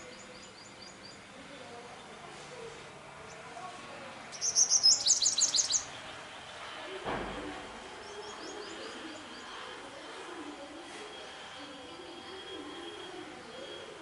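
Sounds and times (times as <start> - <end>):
bird chirping: 4.3 - 6.6.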